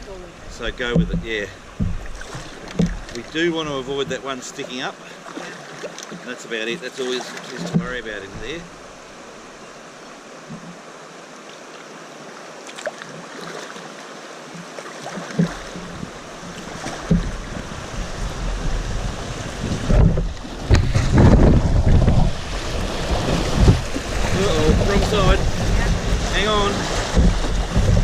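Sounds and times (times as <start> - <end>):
river water rushing: 0.0 - 28.0
water splashing: 0.0 - 28.0
wind on microphone: 15.4 - 28.0.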